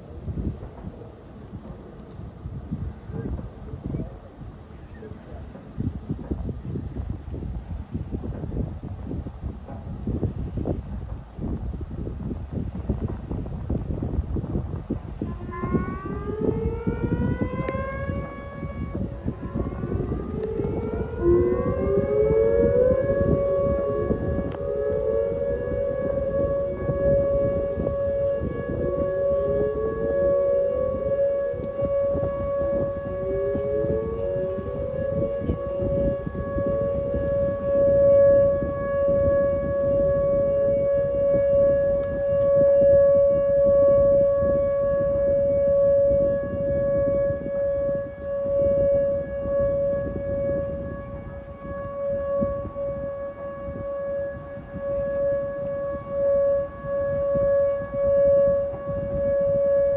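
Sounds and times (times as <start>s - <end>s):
siren steady tone: 11.5s - 59.9s
sirens sweeping up in pitch: 14.6s - 59.9s.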